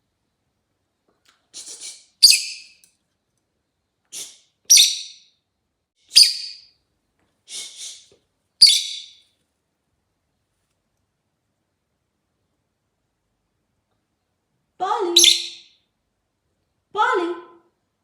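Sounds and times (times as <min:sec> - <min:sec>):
lovebird chirping: 0:02.2 - 0:02.8, 0:04.2 - 0:05.3, 0:06.1 - 0:06.7, 0:08.6 - 0:09.2, 0:15.0 - 0:15.8.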